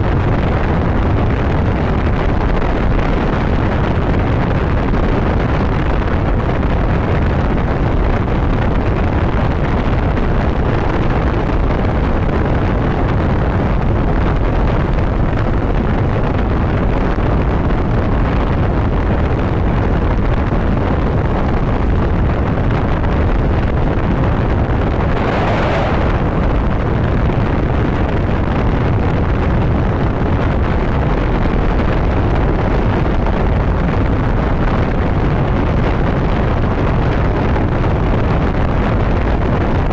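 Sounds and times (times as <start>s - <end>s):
wind rush on microphone: 0.0s - 39.9s
road noise: 24.8s - 27.6s.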